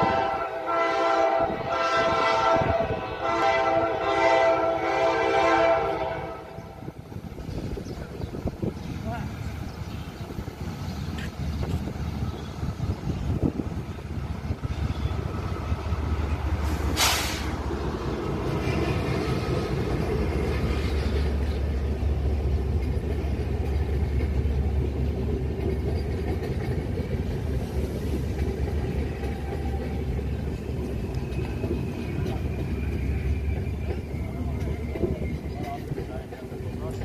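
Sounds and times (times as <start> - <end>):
passenger train rumbling past: 0.0 - 37.0
short sharp hiss: 16.6 - 17.7.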